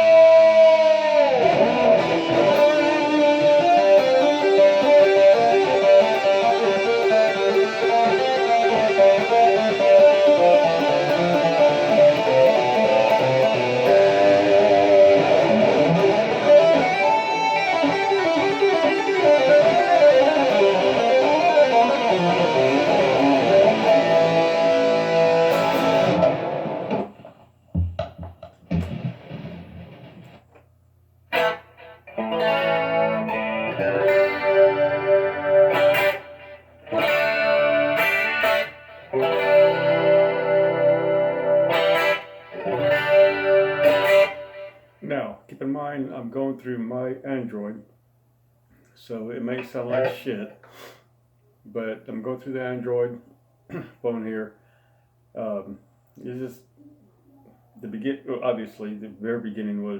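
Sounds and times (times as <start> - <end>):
distorted electric guitar notes: 0.0 - 30.4, 31.3 - 45.0.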